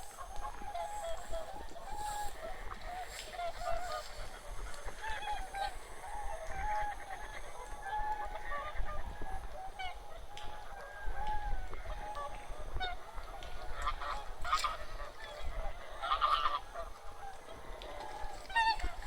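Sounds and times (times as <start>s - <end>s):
geese and swans honking: 0.0s - 19.0s.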